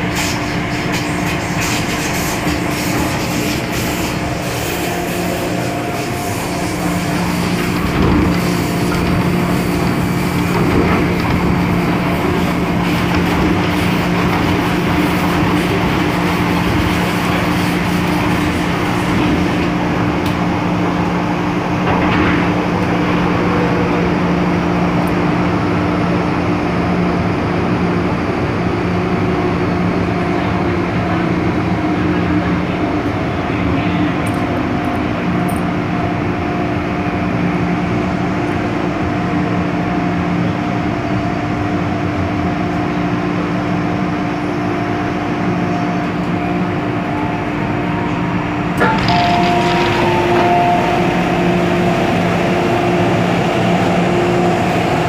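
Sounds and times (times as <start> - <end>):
constant hum tones: 0.0 - 55.0
train wheels rumbling on track: 0.0 - 55.0.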